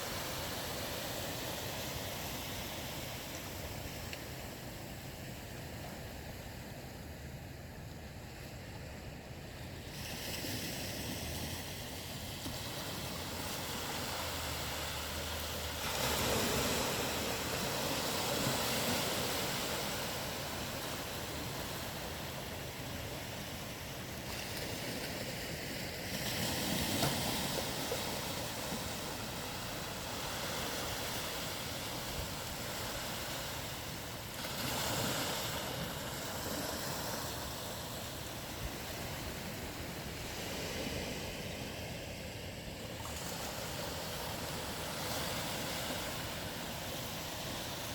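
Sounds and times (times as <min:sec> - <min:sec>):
ocean waves washing in: 0:09.6 - 0:47.9.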